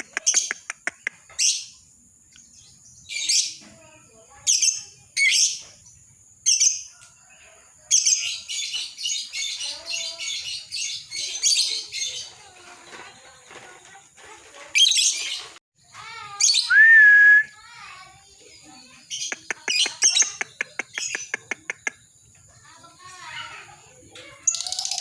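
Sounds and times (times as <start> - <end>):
lovebirds chattering: 0.0 - 7.0, 7.9 - 13.6, 17.7 - 25.0
rising bird whistle: 16.5 - 17.6.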